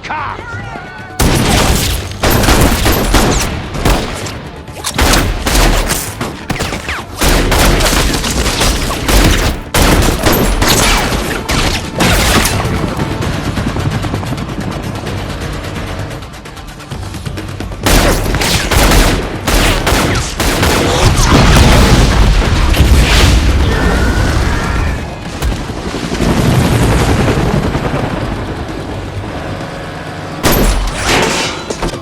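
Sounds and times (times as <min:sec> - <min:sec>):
gunfire volleys: 0:01.2 - 0:13.0, 0:17.9 - 0:23.5.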